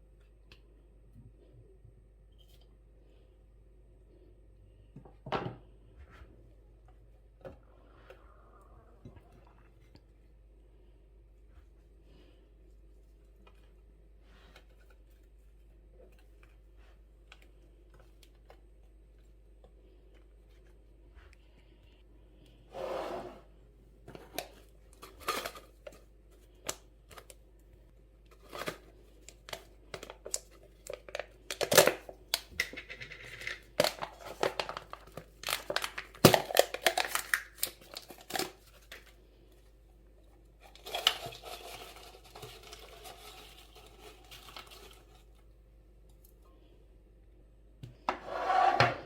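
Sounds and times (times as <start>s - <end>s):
packaging crinkling and rustling: 33.6s - 39.2s.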